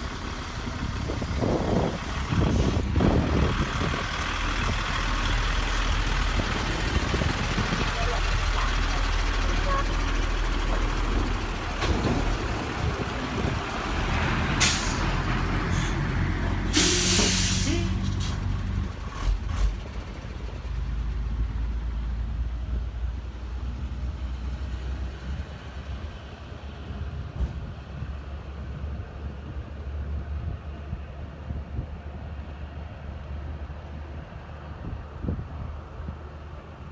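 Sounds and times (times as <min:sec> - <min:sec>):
truck engine running low: 0:00.0 - 0:36.9
air brakes hissing: 0:14.6 - 0:16.1, 0:16.7 - 0:18.5.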